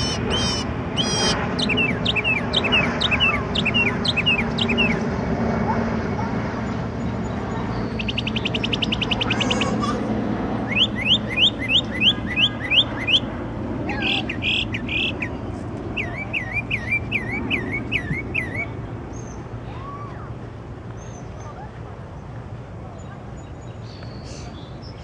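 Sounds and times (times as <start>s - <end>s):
songbird singing: 0.0s - 5.0s, 6.7s - 9.9s, 10.6s - 19.5s, 22.9s - 25.0s
steady low hum: 0.0s - 25.0s.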